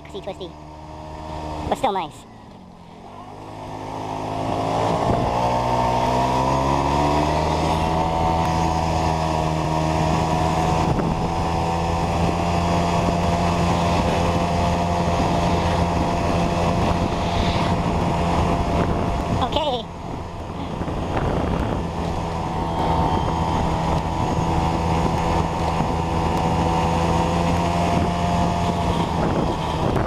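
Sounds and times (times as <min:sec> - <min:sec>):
moped engine pulling away: 0:00.5 - 0:30.0.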